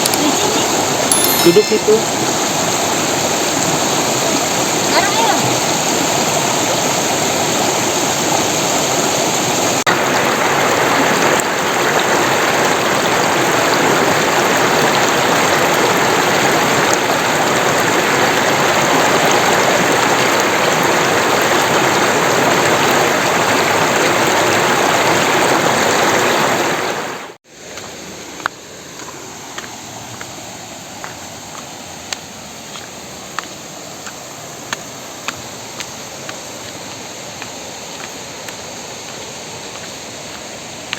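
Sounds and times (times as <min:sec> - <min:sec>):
waterfall and stream rushing: 0:00.0 - 0:40.9.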